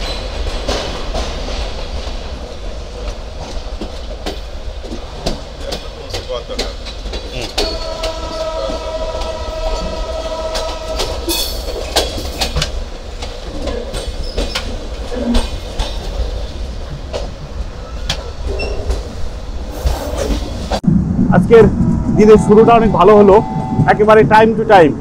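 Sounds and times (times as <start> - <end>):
train wheels rumbling and clacking: 0.0 - 25.0
steady high tone: 7.6 - 11.7, 20.8 - 25.0.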